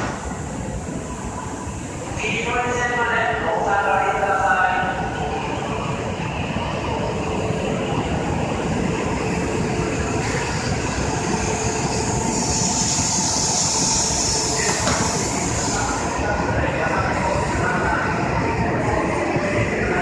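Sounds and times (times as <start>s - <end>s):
high hiss of train: 0.0s - 20.0s
train wheels rumbling: 6.9s - 20.0s.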